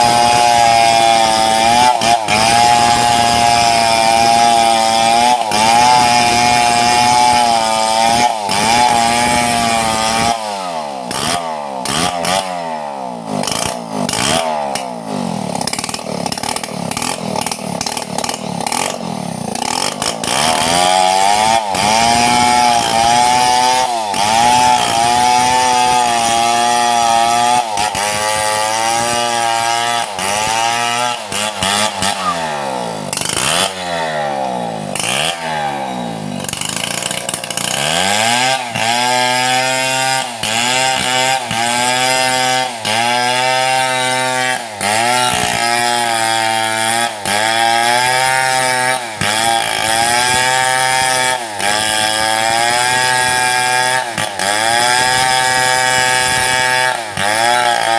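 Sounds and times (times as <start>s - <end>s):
chainsaw cutting log: 0.0s - 57.9s.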